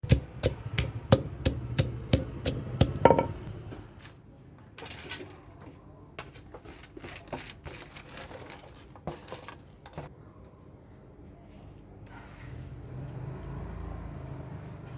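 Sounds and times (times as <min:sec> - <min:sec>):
pestle pounding in a mortar: 0:00.0 - 0:03.5.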